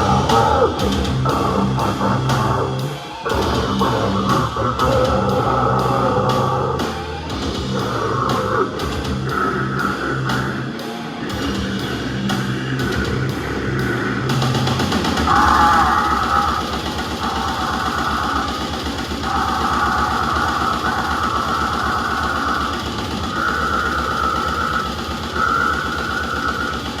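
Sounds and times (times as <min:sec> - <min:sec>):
grindcore band playing live: 0:00.0 - 0:27.0.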